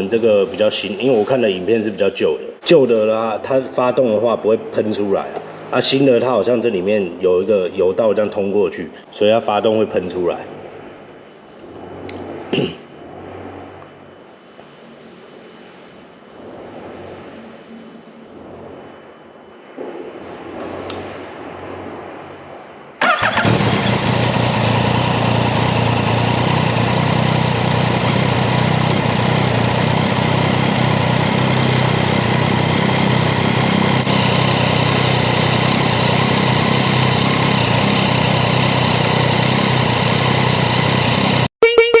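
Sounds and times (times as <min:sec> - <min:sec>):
motorcycle engine idling: 0:23.0 - 0:41.5.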